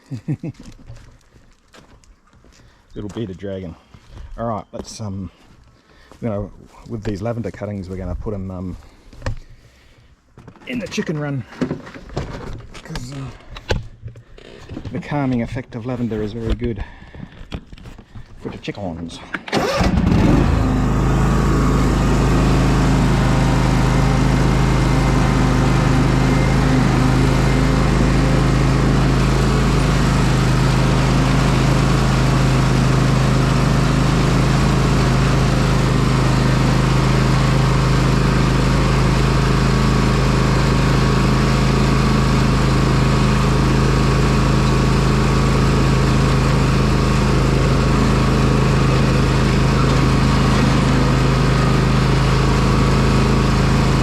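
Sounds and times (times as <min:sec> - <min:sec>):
small petrol engine running: 0:19.5 - 0:54.0.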